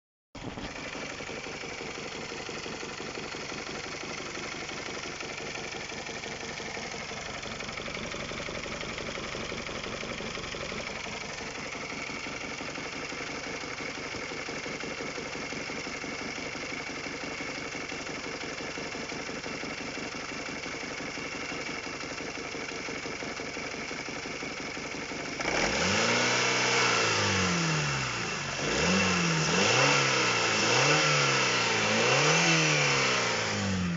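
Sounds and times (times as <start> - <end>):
car engine idling with knock: 0.4 - 25.5
engine revving: 25.3 - 33.9.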